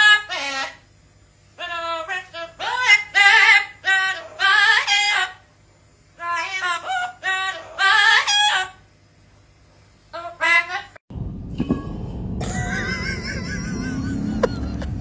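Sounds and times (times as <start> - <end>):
parrot warbling: 0.0 - 0.8, 1.6 - 5.4, 6.2 - 8.8.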